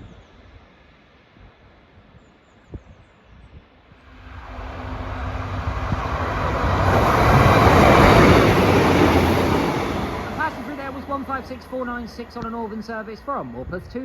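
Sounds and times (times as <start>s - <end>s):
wheel and rail noise: 4.0s - 13.6s
diesel train engine hum: 4.0s - 13.9s.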